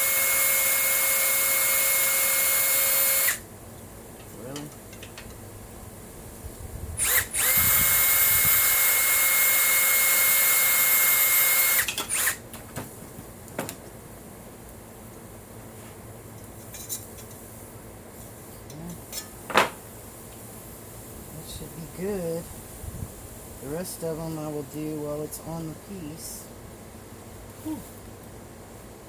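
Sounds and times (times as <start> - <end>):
electric drill drilling metal: 0.0 - 3.4, 7.0 - 12.4.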